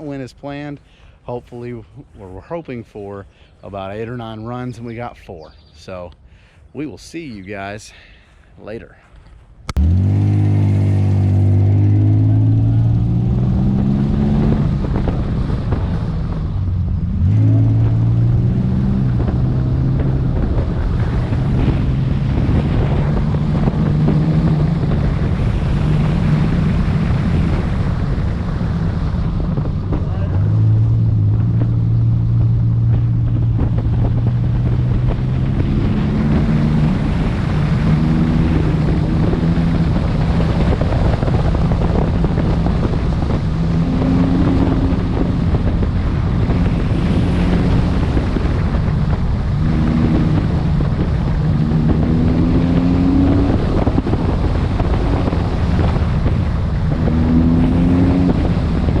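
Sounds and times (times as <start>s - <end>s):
heavy wind noise: 0.0s - 59.0s
car engine accelerating: 9.7s - 59.0s.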